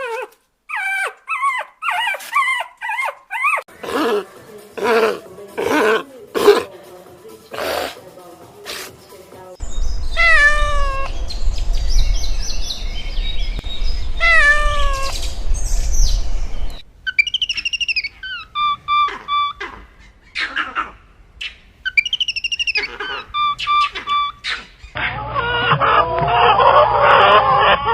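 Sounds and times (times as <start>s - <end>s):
steady low rumble: 9.6s - 17.0s
high chirping and whistled calls: 9.6s - 20.6s, 21.4s - 25.0s
cat meowing: 10.2s - 11.1s, 14.2s - 15.2s.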